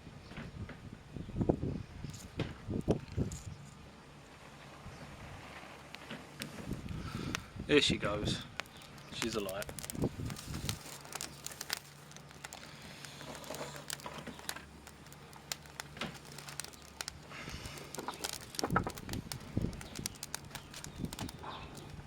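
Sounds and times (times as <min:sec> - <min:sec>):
twigs crackling in a stove: 0:05.8 - 0:22.0.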